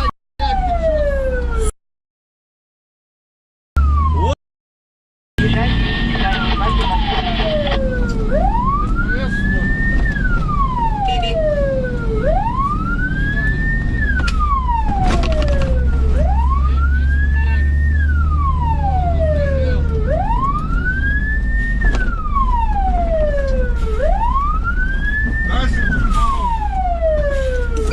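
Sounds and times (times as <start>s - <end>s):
siren wailing: 0.4s - 1.8s, 3.8s - 4.4s, 5.4s - 27.9s
heavy engine rumble: 18.4s - 27.9s.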